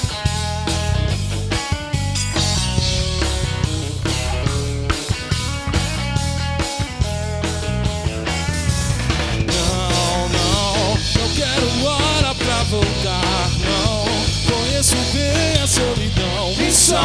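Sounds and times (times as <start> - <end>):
band playing a groove: 0.0 - 17.0
vibrato lead line: 2.4 - 6.6.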